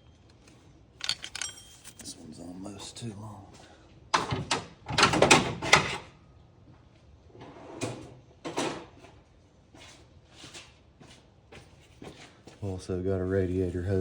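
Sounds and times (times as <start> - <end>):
hand tools clattering: 1.0 - 2.2.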